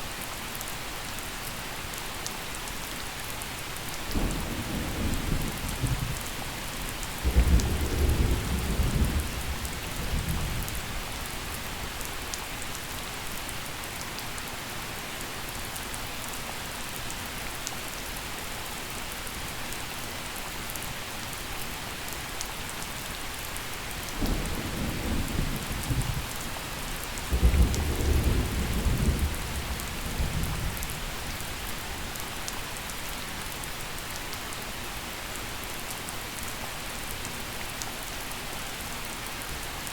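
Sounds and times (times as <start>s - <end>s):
gentle rain falling: 0.0s - 39.9s
thunder rumbling: 7.2s - 10.8s, 27.3s - 30.5s.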